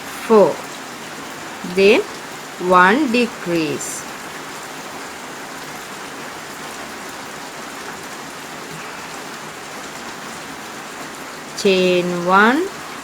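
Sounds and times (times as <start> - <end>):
steady hiss: 0.0 - 2.0.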